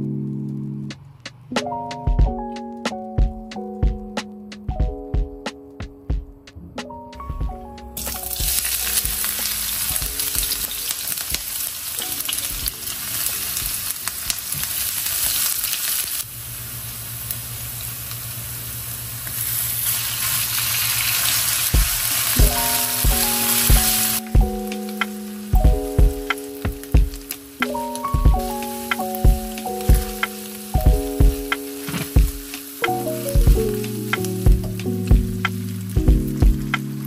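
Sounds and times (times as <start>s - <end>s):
onion sizzling in hot oil: 8.0s - 37.0s.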